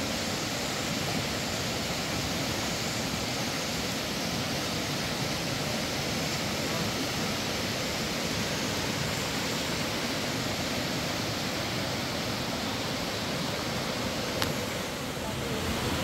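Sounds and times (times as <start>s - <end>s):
faint click: 14.4s - 14.6s.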